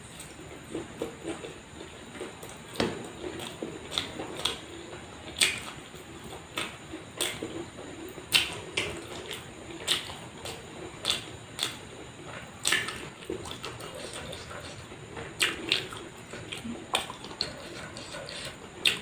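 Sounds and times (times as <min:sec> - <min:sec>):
wet chewing and mouth smacks: 0:00.1 - 0:19.0
sharp mouth clicks: 0:09.9 - 0:11.8.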